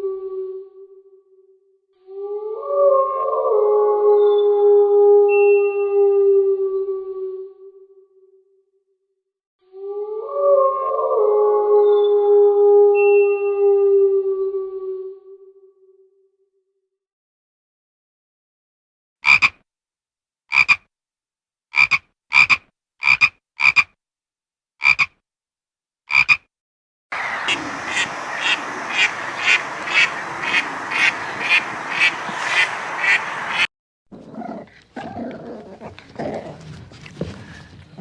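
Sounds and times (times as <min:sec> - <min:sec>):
frogs croaking: 0:19.2 - 0:19.5, 0:20.5 - 0:20.8, 0:21.8 - 0:23.9, 0:24.8 - 0:25.1, 0:26.1 - 0:26.4, 0:27.2 - 0:33.7
pulsing frog chorus: 0:19.2 - 0:19.5, 0:27.2 - 0:33.7
rough animal sound: 0:31.5 - 0:38.0.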